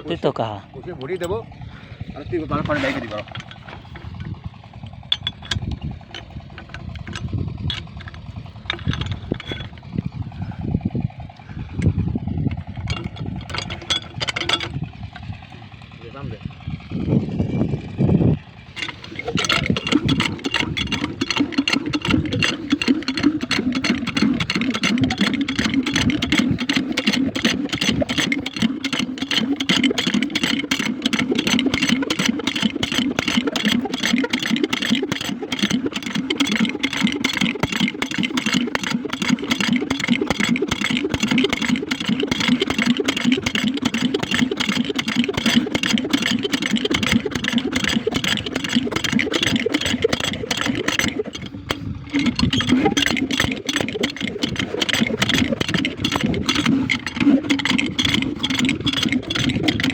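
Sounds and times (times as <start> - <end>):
diesel engine driving pump: 0.0 - 59.9.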